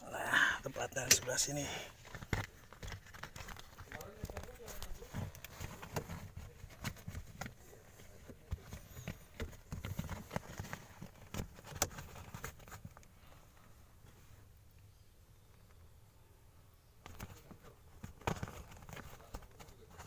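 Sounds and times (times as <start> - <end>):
handling taps and rustles: 0.7 - 13.2, 17.0 - 20.0.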